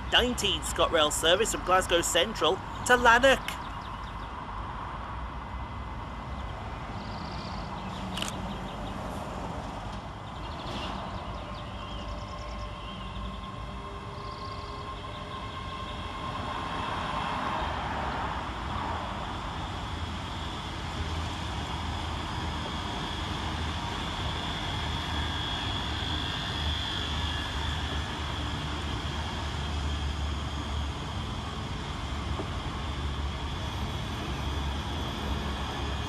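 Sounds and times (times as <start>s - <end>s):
train wheels rumbling on rails: 8.0s - 36.0s.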